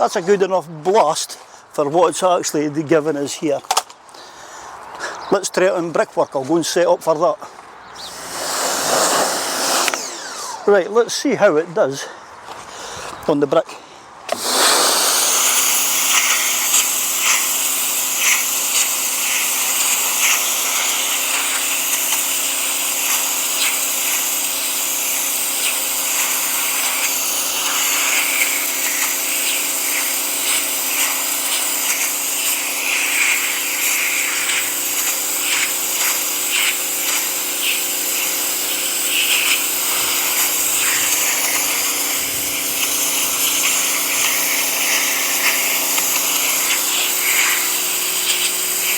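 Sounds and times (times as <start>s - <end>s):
pressure washer motor humming: 8.0s - 10.8s, 14.3s - 48.9s
water jet hissing: 8.0s - 10.8s, 14.3s - 48.9s
spray crackling on brick: 8.1s - 10.0s, 14.3s - 48.9s.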